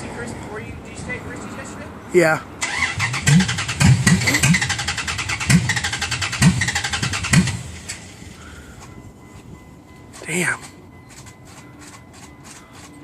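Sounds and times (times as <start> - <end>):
engine cranking without starting: 2.6 - 8.4.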